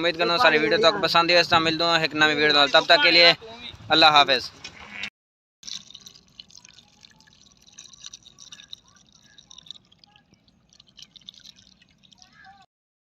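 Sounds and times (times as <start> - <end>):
faint water trickling and dripping: 5.6 - 12.7
small water splashes: 5.6 - 12.7.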